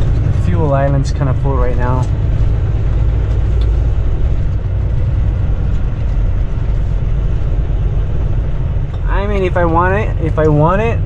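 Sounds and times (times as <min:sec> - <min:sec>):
diesel truck engine rumble: 0:00.0 - 0:11.0.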